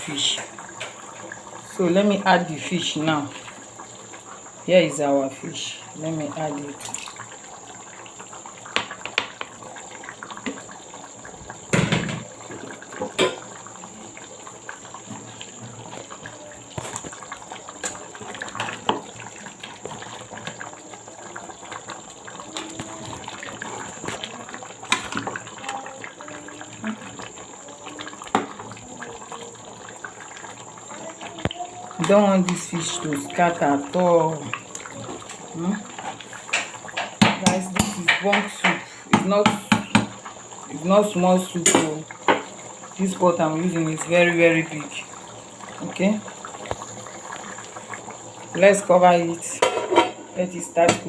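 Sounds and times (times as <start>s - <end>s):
soup bubbling in a pot: 0.0s - 51.0s
knocks and clinks in a pot: 36.5s - 40.2s, 49.5s - 51.0s.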